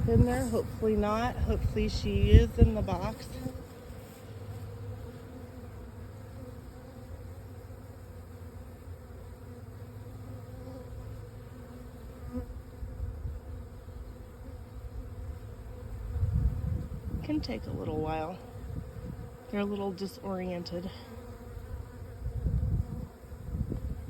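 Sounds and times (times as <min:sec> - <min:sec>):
bees buzzing: 0:00.0 - 0:24.0.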